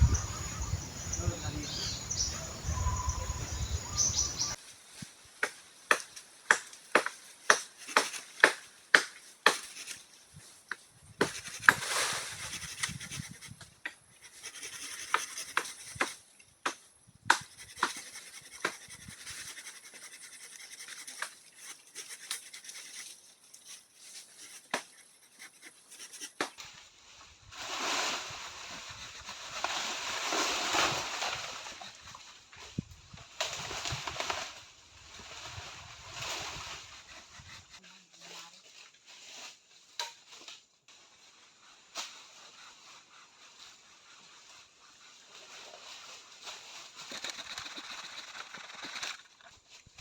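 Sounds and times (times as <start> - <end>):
rustling: 17.4 - 50.0.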